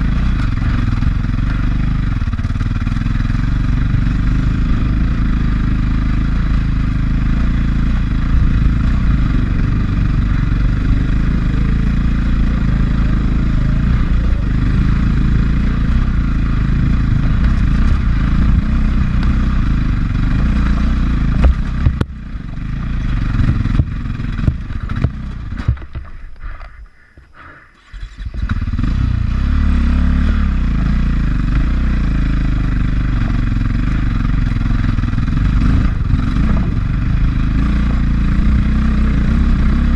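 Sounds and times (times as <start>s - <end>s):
dirt bike engine running: 0.0s - 39.9s
knocks and clatter: 20.4s - 26.2s.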